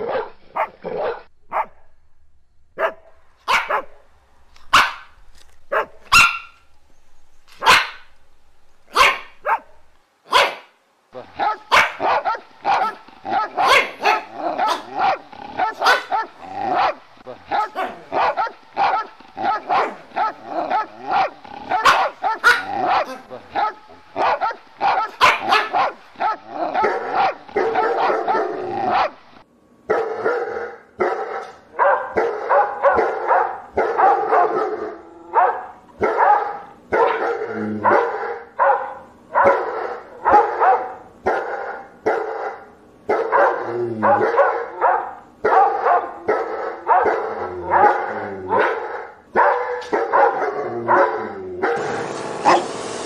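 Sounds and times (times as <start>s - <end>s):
dog barking: 0.1s - 1.8s, 2.8s - 4.0s, 4.7s - 5.1s, 5.7s - 6.6s, 7.6s - 8.0s, 8.9s - 9.7s, 10.3s - 10.8s, 11.4s - 29.2s, 29.9s - 52.6s.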